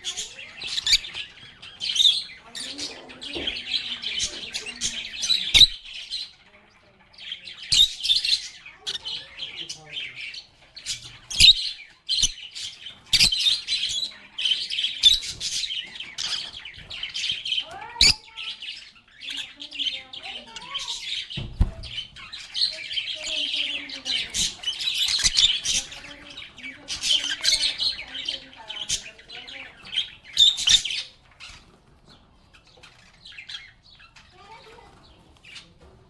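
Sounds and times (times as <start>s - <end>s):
lovebirds chirping: 0.0s - 36.0s.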